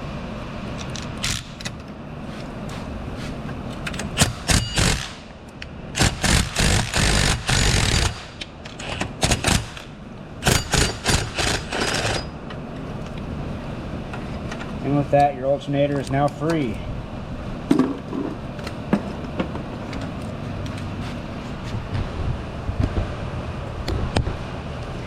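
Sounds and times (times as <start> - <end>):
power tool spinning out a bolt: 0.9 - 1.8, 4.3 - 5.2, 6.0 - 9.9, 10.5 - 12.3.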